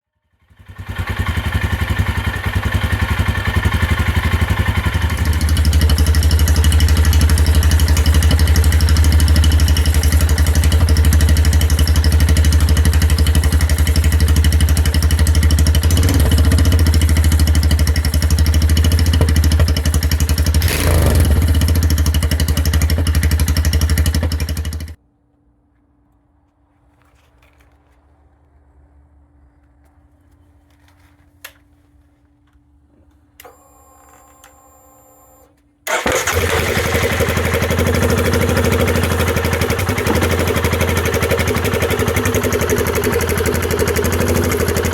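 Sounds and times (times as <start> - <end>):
motorcycle engine deep exhaust note: 1.3 - 25.0, 35.9 - 44.9.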